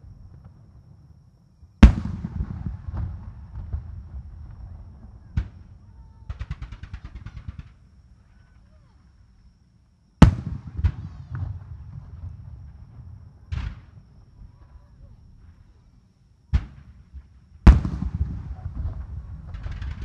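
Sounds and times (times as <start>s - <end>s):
fireworks bursting: 1.8s - 8.4s, 10.2s - 14.0s, 16.5s - 20.0s
fireworks crackles: 1.8s - 8.8s, 17.7s - 20.0s.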